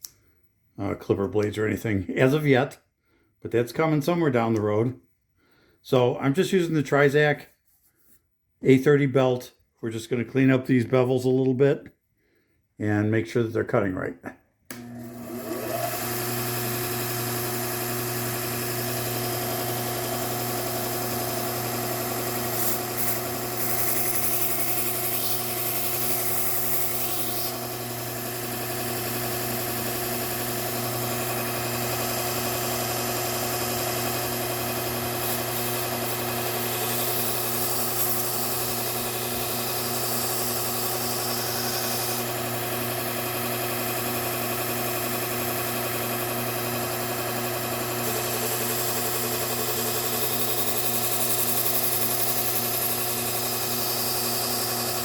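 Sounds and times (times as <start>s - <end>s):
belt grinder humming: 14.7s - 55.0s.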